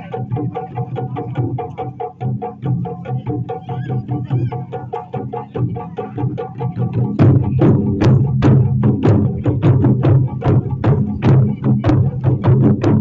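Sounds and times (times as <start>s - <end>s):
taiko drums playing: 0.0s - 13.0s.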